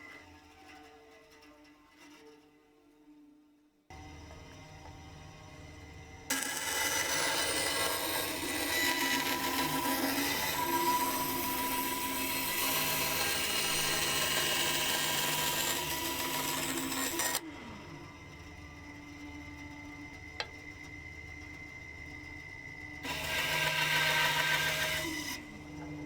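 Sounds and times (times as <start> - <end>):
bandsaw cutting wood: 6.3 - 17.4, 23.0 - 25.6.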